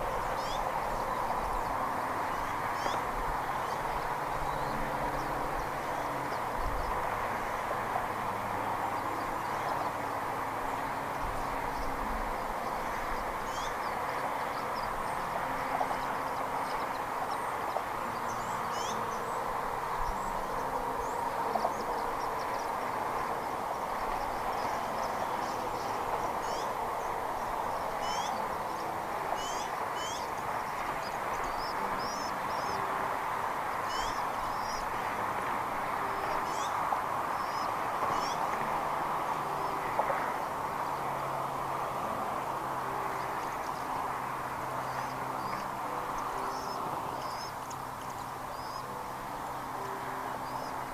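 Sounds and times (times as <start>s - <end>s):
steady rushing noise: 0.0s - 50.9s
high bird chirps: 28.0s - 28.4s, 29.4s - 30.3s.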